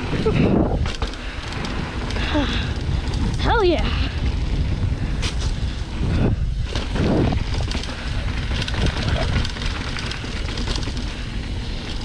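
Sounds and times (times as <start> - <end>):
bike rattling clicks: 0.0 - 12.0
wind rumbling on microphone: 0.0 - 12.0.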